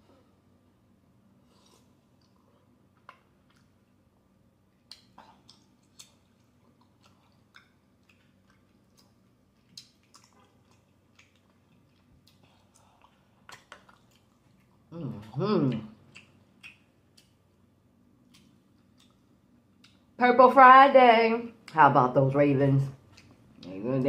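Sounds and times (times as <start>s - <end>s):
faint chewing: 1.4s - 4.1s, 4.7s - 20.2s, 23.0s - 24.0s
wet mouth clicks: 16.1s - 17.4s.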